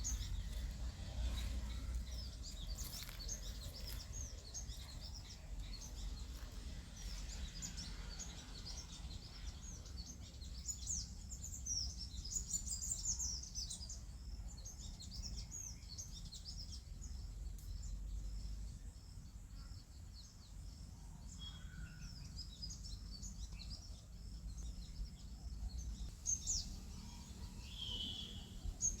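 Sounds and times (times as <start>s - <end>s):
low rumble: 0.0s - 8.5s
small birds chirping and twittering: 0.0s - 29.0s.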